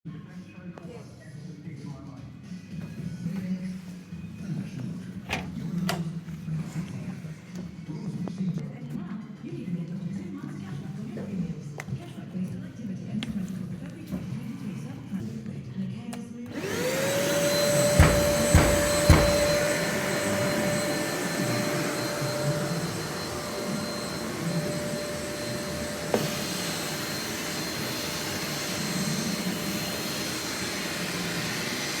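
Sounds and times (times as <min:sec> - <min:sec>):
vacuum cleaner motor whining: 0:16.5 - 0:32.0
sharp knocks: 0:17.9 - 0:19.7.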